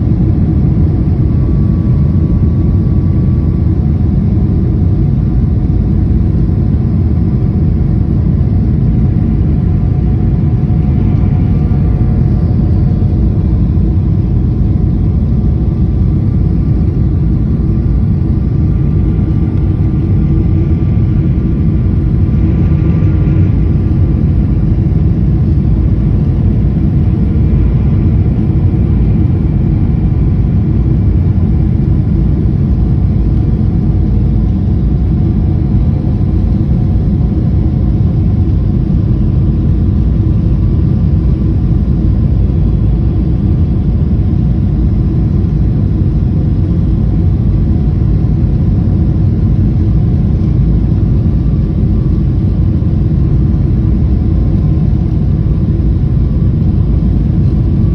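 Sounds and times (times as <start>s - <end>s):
faint whining tones: 0.0s - 39.4s
jet engine and airflow rumble: 0.0s - 57.9s.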